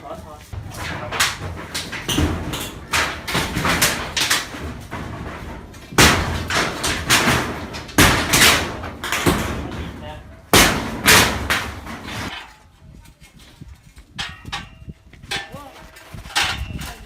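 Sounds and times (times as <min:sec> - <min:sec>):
hammering knocks and bangs: 0:00.5 - 0:12.4.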